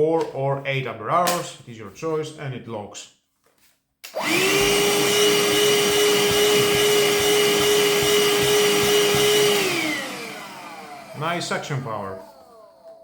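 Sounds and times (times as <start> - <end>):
handheld vacuum cleaner motor: 4.1 - 12.7.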